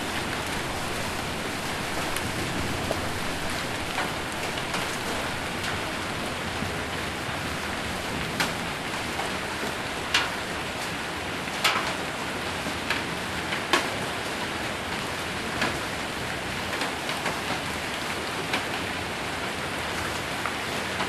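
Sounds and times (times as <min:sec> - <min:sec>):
hail and rain on a metal roof: 0:00.0 - 0:21.0.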